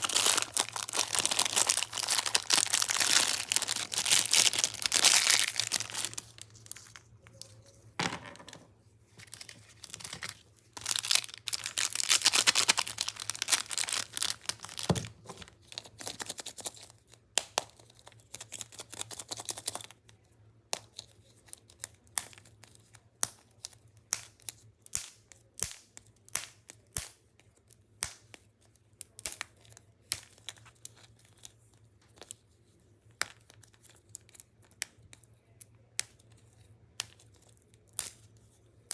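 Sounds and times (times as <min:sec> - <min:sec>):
plastic packet crinkling and tearing: 0:00.0 - 0:07.8, 0:09.1 - 0:17.1, 0:17.7 - 0:20.0.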